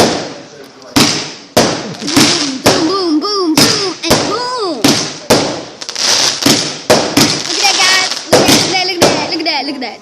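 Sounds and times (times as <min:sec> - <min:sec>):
fireworks bangs: 0:00.0 - 0:09.6
fireworks hiss: 0:00.1 - 0:02.9, 0:03.6 - 0:09.4
shrill whistling fireworks: 0:04.9 - 0:09.3.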